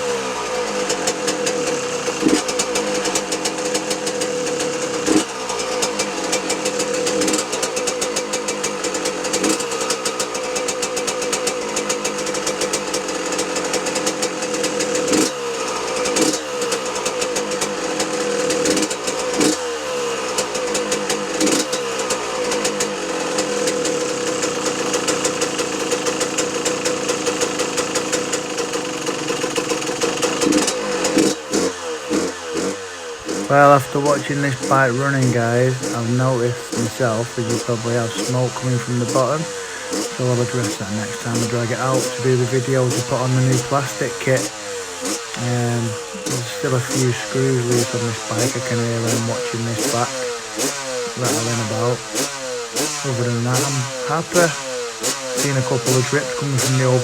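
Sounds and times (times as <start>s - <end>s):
two-stroke motorcycle engine revving: 0.0s - 57.0s
loose screws rattling: 39.1s - 42.2s.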